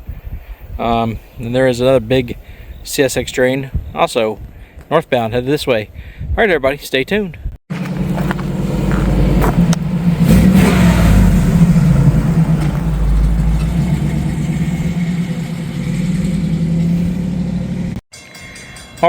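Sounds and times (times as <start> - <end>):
vehicle engine humming: 7.7 - 18.0.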